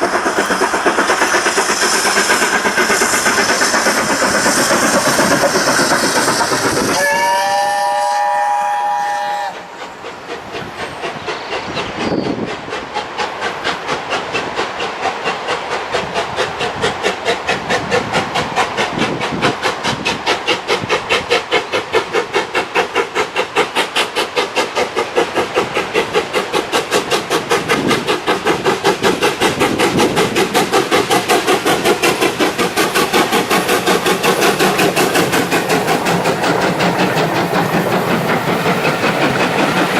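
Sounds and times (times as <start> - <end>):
locomotive exhaust beats: 0.0 - 39.9
steam locomotive whistle: 6.8 - 9.8.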